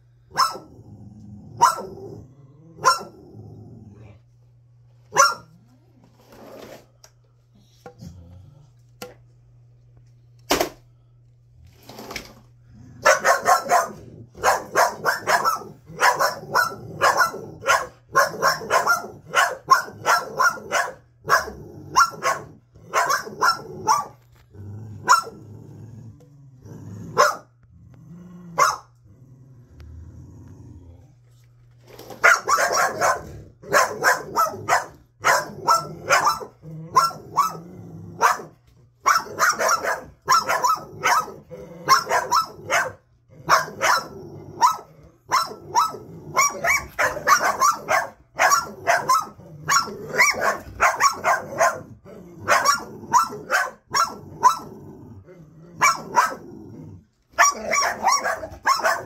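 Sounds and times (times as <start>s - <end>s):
dogs barking: 0.3s - 0.8s, 1.6s - 2.2s, 2.8s - 3.2s, 5.1s - 5.6s, 13.0s - 24.3s, 25.0s - 25.4s, 27.1s - 27.5s, 28.6s - 29.0s, 32.1s - 37.6s, 38.2s - 54.7s, 55.8s - 56.4s, 57.3s - 59.0s.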